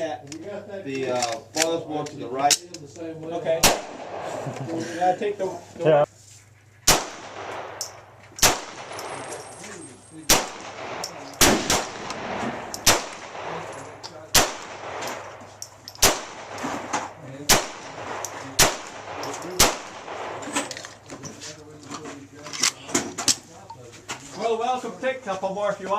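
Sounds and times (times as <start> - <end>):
gunshots with ringing tail: 3.6 - 4.4, 6.9 - 9.4, 10.2 - 15.4, 16.0 - 20.6.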